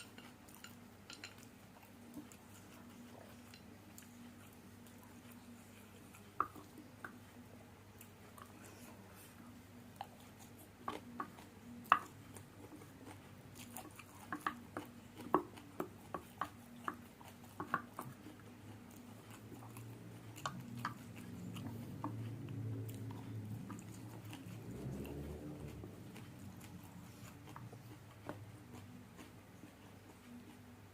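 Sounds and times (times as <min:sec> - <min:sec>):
low steady hum: 0:00.0 - 0:30.9
wet chewing: 0:00.0 - 0:30.9.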